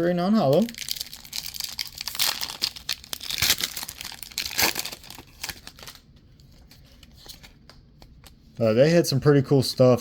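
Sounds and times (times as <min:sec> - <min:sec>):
foil wrapper crinkling and tearing: 0:00.3 - 0:06.0.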